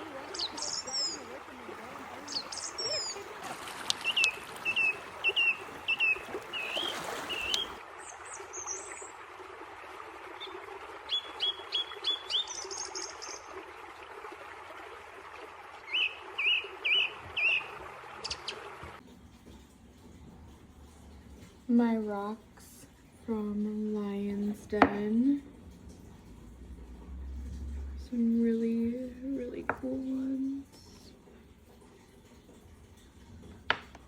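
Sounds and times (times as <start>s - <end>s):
songbirds chirping: 0.0s - 9.3s, 10.2s - 19.0s
steady outdoor hiss: 0.0s - 34.0s.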